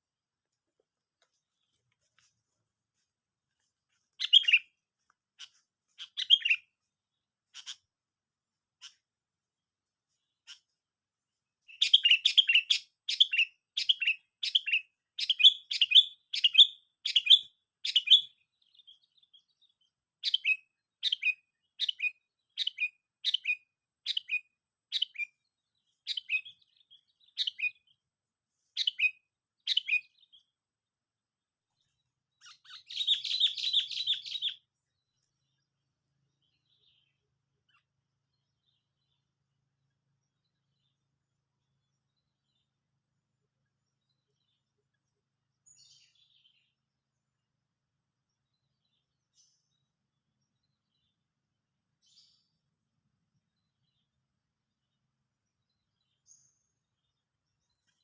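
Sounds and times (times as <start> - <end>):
bird chirping: 3.5 - 8.0, 8.6 - 9.1, 10.1 - 10.9, 11.6 - 30.6, 31.6 - 58.0
bird chattering: 4.2 - 4.6, 5.4 - 6.6, 7.5 - 7.9.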